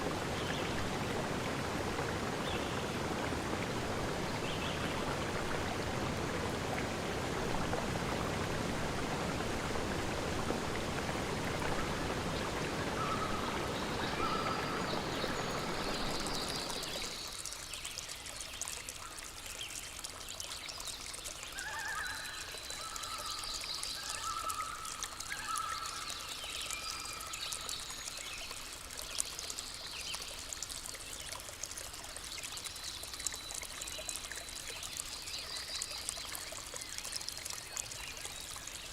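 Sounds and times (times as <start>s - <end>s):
stream water rushing: 0.0s - 20.1s.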